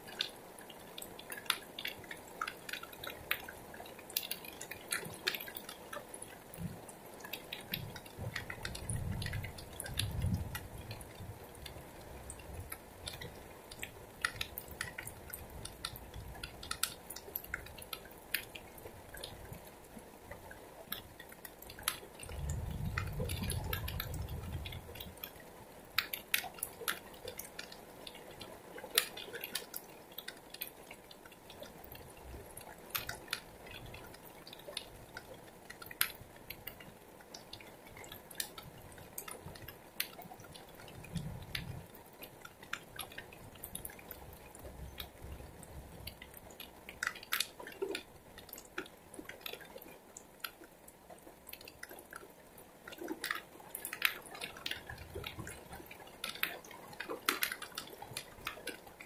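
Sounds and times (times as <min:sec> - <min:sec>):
heavy rain: 0:00.0 - 0:30.6.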